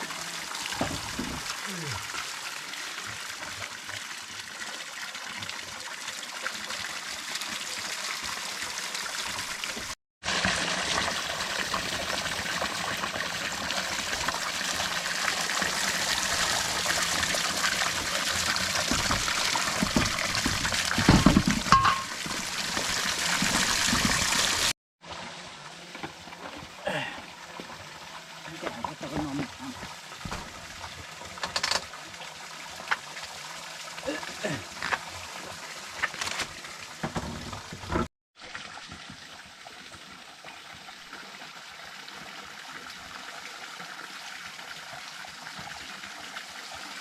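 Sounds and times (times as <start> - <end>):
water running and trickling: 0.0 - 47.0
knock or splash: 18.7 - 22.4, 30.2 - 30.7.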